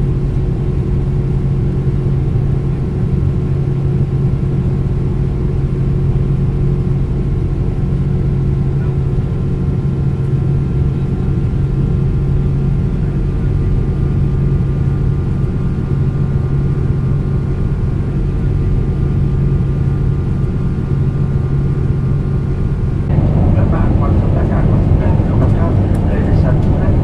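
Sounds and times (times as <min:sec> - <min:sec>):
airplane cabin drone: 0:00.0 - 0:27.0
person speaking: 0:23.1 - 0:27.0.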